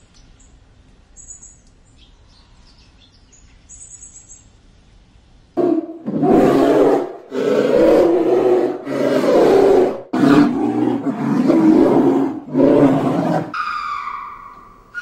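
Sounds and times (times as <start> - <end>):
big cat roaring: 5.6 - 13.6.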